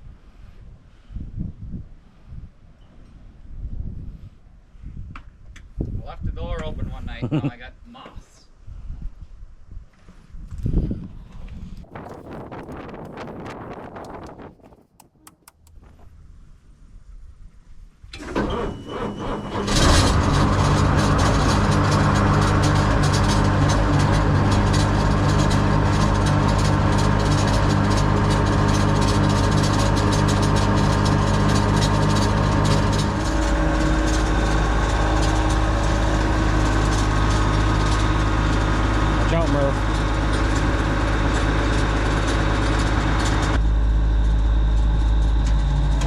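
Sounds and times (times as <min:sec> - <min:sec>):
engine cranking and idling: 0:18.1 - 0:46.0.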